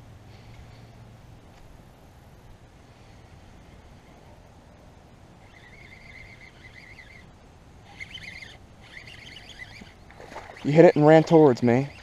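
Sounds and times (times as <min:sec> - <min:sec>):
faint bird song: 0:03.0 - 0:12.0.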